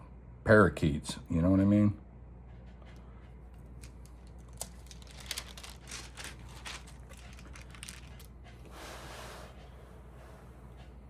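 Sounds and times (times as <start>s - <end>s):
album pages clicking and crinkling: 3.8s - 8.3s
pages rustling: 3.8s - 8.3s.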